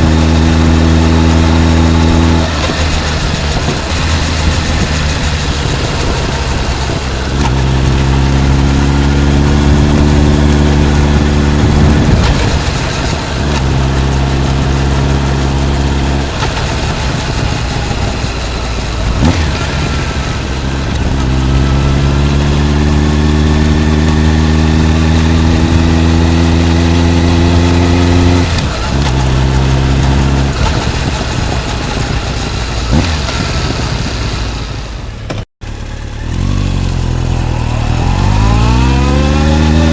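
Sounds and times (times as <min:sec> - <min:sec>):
wind noise on microphone: 0:00.0 - 0:34.9
motorcycle accelerating through gears: 0:00.0 - 0:39.9.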